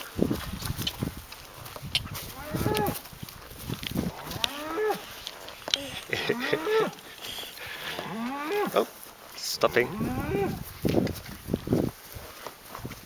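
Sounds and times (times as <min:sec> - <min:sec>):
cattle mooing: 0:02.3 - 0:03.0, 0:04.1 - 0:05.2, 0:05.8 - 0:08.9, 0:09.5 - 0:10.6.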